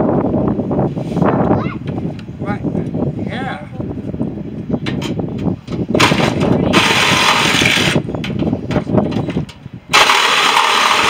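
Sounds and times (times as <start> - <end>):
rapid ratcheting chatter: 6.0 - 8.1, 9.9 - 11.0
power tool on metal: 6.8 - 8.0, 9.9 - 11.0.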